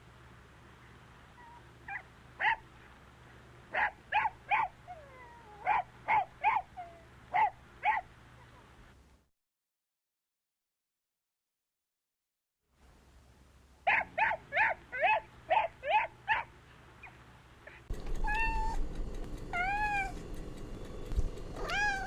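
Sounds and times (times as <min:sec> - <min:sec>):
low steady hum: 0:00.0 - 0:09.3, 0:12.8 - 0:22.0
animal yelping: 0:01.4 - 0:02.7, 0:03.7 - 0:08.7, 0:13.9 - 0:22.0.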